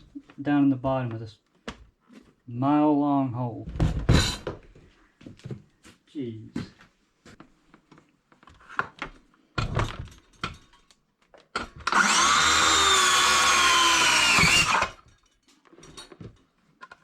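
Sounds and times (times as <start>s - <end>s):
power tool motor whine: 11.9s - 15.0s.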